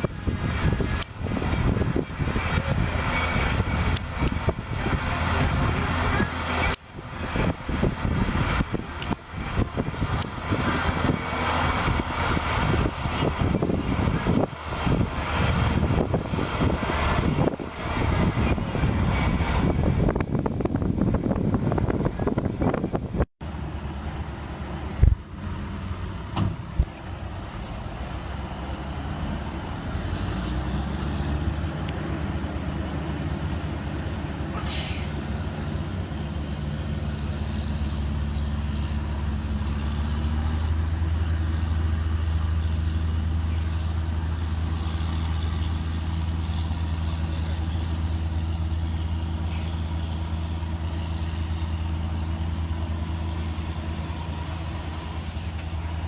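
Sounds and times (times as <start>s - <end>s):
tractor diesel engine running: 0.0s - 56.0s
short hiss: 34.5s - 35.2s.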